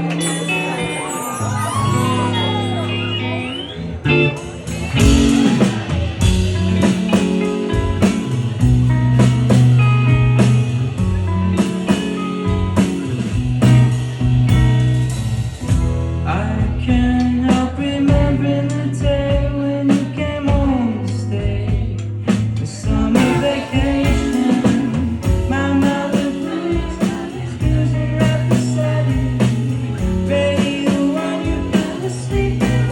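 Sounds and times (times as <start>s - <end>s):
person singing: 0.0s - 6.4s, 22.6s - 32.9s
live rock band playing: 0.0s - 32.9s.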